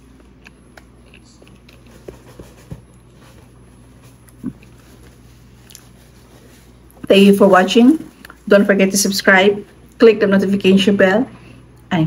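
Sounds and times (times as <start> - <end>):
chewing and lip smacks: 0.0 - 2.0, 4.2 - 6.0
low room hum: 0.0 - 12.0.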